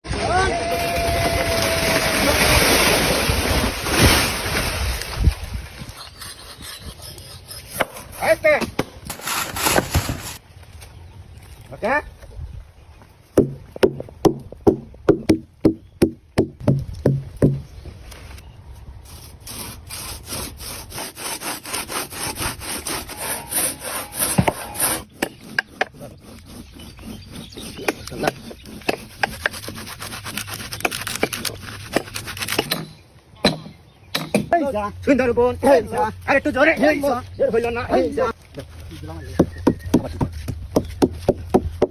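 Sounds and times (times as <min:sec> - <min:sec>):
hand saw cutting wood: 0:05.8 - 0:10.4, 0:19.1 - 0:33.0.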